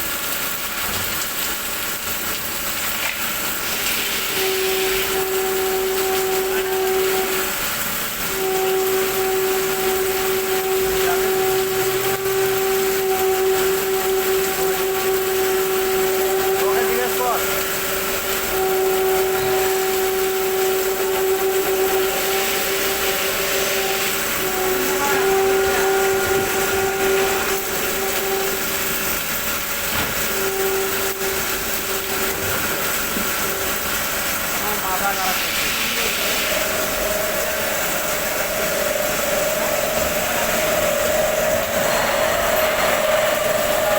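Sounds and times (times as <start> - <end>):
machining hiss: 1.1 - 43.9
steady motor whine: 3.6 - 43.9.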